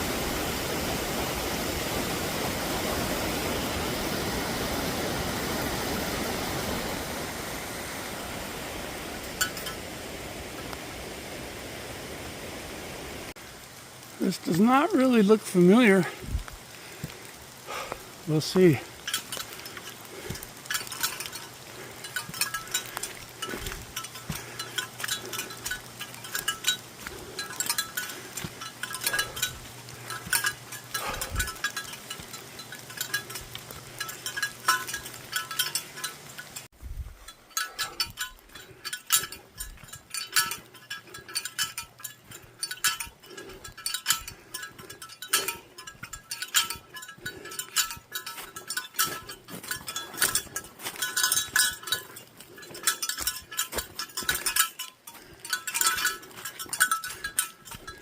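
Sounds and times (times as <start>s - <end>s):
small bells jingling: 9.1s - 10.0s, 14.2s - 17.0s, 17.7s - 58.0s.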